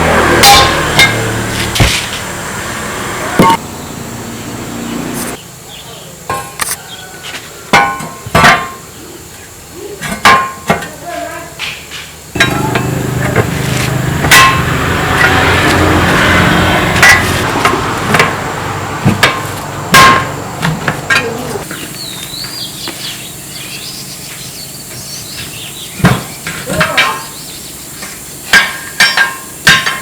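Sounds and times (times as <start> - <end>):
hammer striking metal: 0.0 - 2.0, 3.4 - 3.6, 12.4 - 18.4, 19.0 - 20.4, 28.5 - 30.0
steady mechanical drone: 0.0 - 5.4, 12.2 - 30.0.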